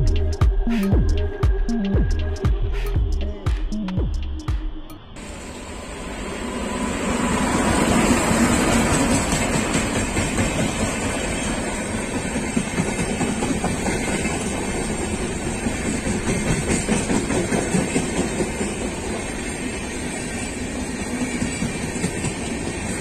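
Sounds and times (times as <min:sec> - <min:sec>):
train rushing past: 0:05.2 - 0:23.0.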